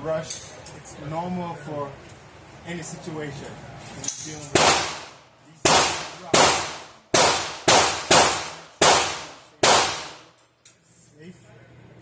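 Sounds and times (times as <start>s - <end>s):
gunshots with echo: 4.6s - 10.3s.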